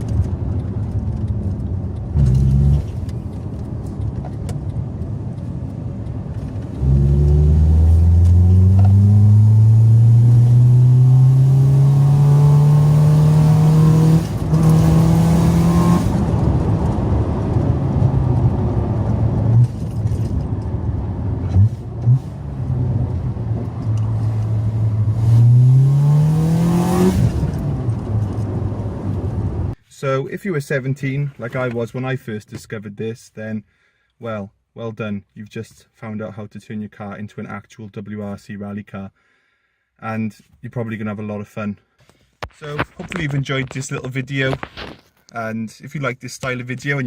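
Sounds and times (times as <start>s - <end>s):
car engine accelerating hard: 6.7s - 29.7s.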